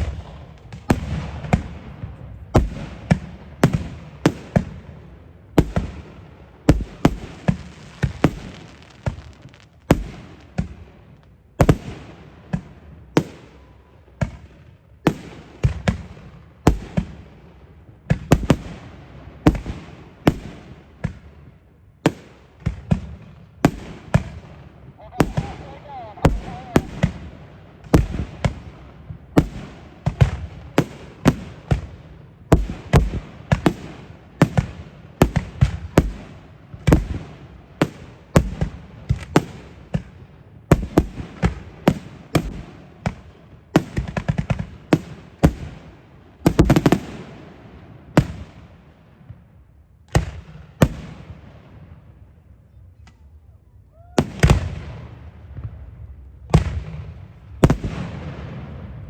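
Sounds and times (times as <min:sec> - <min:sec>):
heavy firework blast: 0:00.0 - 0:10.9, 0:22.1 - 0:31.9
fireworks banging: 0:05.6 - 0:13.5, 0:22.1 - 0:31.9.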